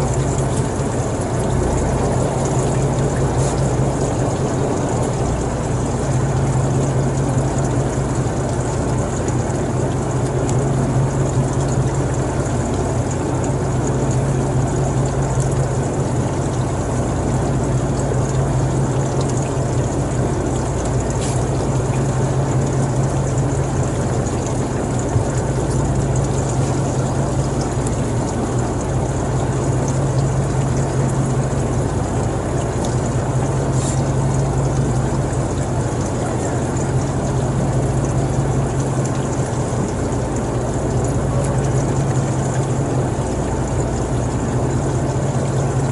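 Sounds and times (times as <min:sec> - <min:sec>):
engine running steadily: 0:00.0 - 0:45.9.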